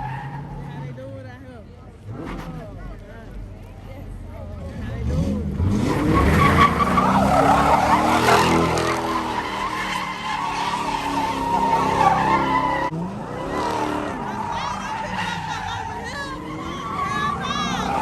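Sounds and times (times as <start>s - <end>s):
tyres squealing on pavement: 0.0s - 1.2s, 5.6s - 18.0s
car engine revving: 1.8s - 18.0s.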